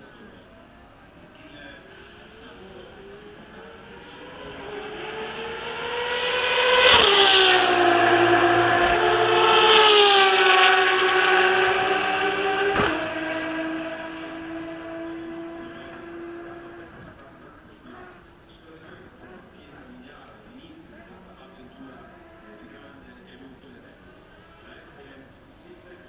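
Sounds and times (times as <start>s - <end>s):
race car engine at high revs: 1.4s - 18.4s, 22.0s - 22.8s.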